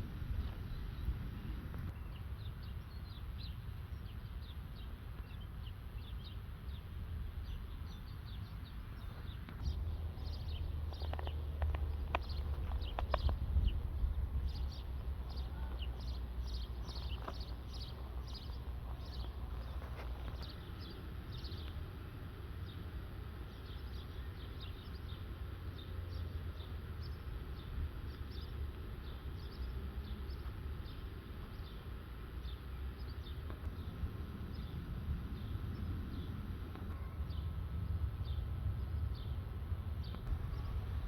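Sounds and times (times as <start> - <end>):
steady low rumble: 6.7 - 22.8, 33.5 - 41.0
birds chirping: 7.4 - 21.8, 40.0 - 41.0.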